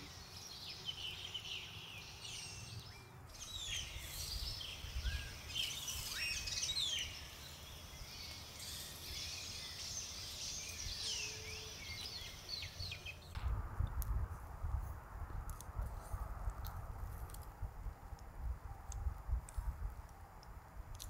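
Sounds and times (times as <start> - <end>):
small birds chirping: 0.0 - 13.4
low rumble: 13.3 - 20.1.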